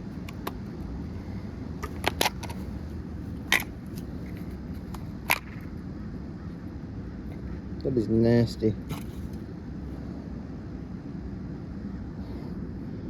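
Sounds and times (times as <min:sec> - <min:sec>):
clicks and snaps of parts pried apart: 0:01.8 - 0:02.6.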